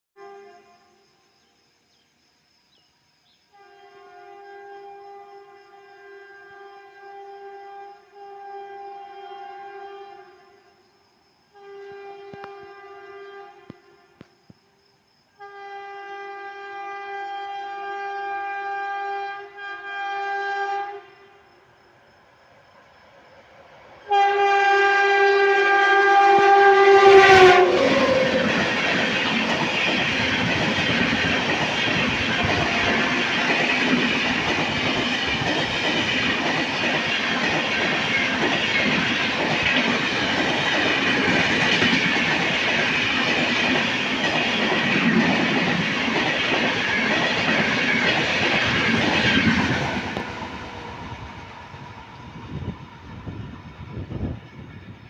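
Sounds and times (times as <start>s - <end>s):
train horn: 0.2s - 1.2s, 3.5s - 14.3s, 15.3s - 21.7s, 24.0s - 38.4s
train wheels clattering on rails: 26.9s - 51.2s.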